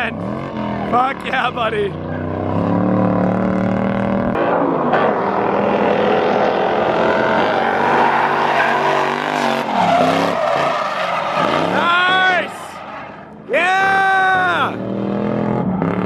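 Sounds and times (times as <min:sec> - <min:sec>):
car engine at high revs: 0:00.0 - 0:13.5, 0:14.3 - 0:16.0.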